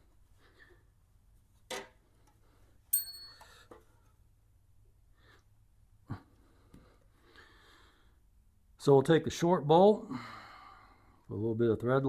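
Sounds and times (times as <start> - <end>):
faint metal clatters: 1.7 - 4.2
ringing metallic clink: 2.9 - 3.7
light knock of metal parts: 2.9 - 3.8.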